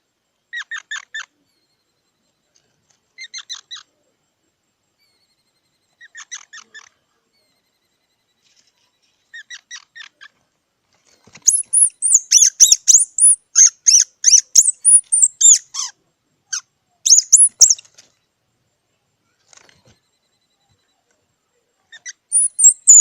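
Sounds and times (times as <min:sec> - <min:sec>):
squirrel squeaky chirps: 0:00.5 - 0:01.8, 0:03.2 - 0:03.9, 0:05.0 - 0:08.2, 0:09.3 - 0:10.3, 0:11.4 - 0:17.9, 0:21.8 - 0:23.0.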